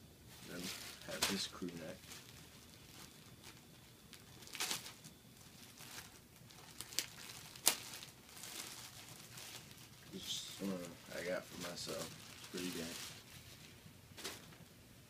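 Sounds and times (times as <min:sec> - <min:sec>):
sweatshirt fabric rustling: 0:04.2 - 0:14.5.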